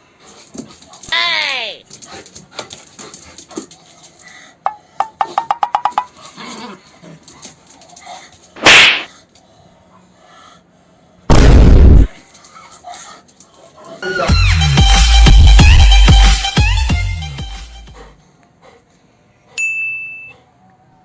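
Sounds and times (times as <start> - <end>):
loud rumbling blast: 11.3 - 12.1
loud burst of noise: 11.3 - 12.2.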